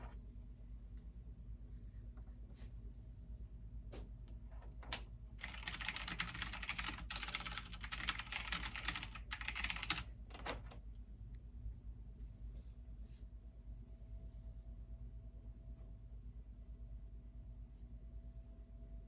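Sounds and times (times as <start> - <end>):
computer keyboard typing: 5.4 - 10.8.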